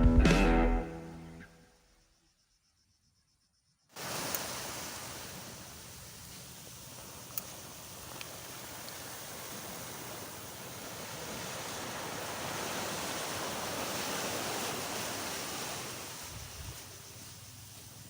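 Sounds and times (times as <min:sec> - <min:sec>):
waves washing onto beach: 0:04.0 - 0:18.0.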